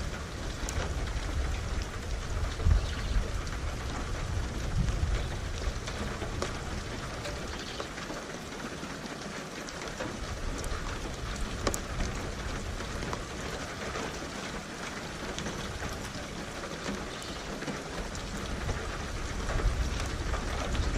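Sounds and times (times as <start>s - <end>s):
distant thunder rumble: 0.0s - 8.0s
steady rain: 0.0s - 20.9s.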